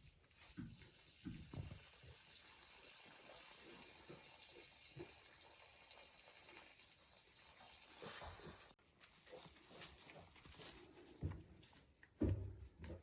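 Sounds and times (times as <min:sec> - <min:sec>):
soft rustles: 0:08.3 - 0:12.5.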